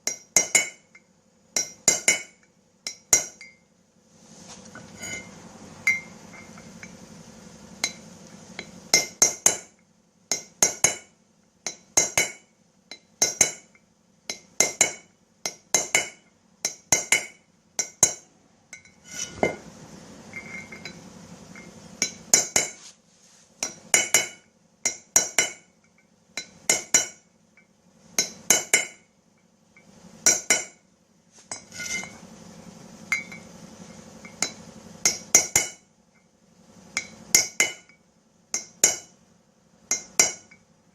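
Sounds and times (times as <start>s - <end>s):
hammer striking metal punch: 0.0s - 0.8s, 1.6s - 3.6s, 8.9s - 11.1s, 11.7s - 12.5s, 14.3s - 19.7s, 22.0s - 22.8s, 23.6s - 25.7s, 26.4s - 27.2s, 30.2s - 30.8s, 38.6s - 39.1s, 39.9s - 40.6s.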